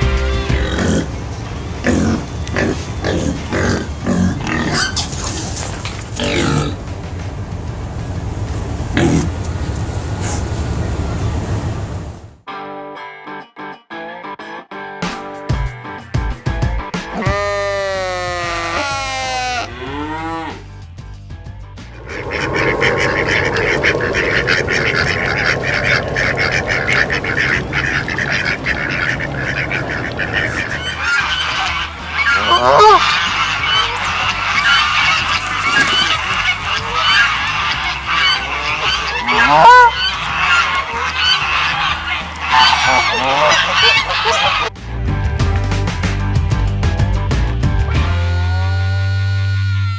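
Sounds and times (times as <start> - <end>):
geese honking: 21.9 - 44.8.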